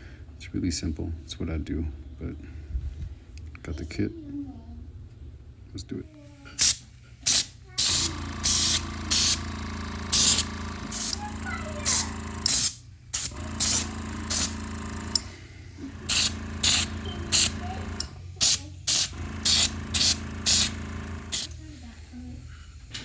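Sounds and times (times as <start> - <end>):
steady low hum: 4.4 - 23.0
spray bottle spritzing: 6.6 - 14.5, 16.1 - 21.5.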